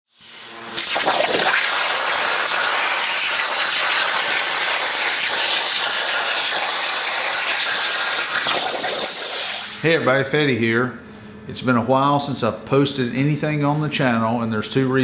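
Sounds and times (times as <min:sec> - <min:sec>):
plasma cutter hissing: 0:00.1 - 0:10.1.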